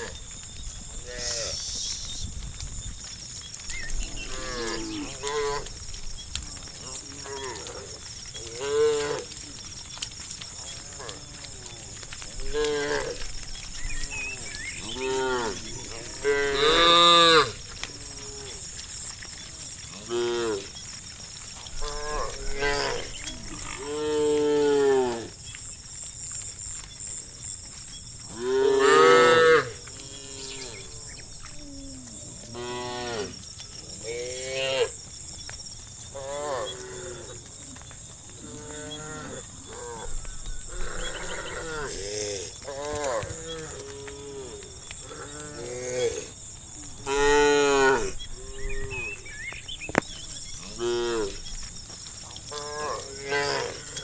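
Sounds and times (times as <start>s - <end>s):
steady high hiss: 1.0s - 2.3s
cattle mooing: 10.6s - 18.6s.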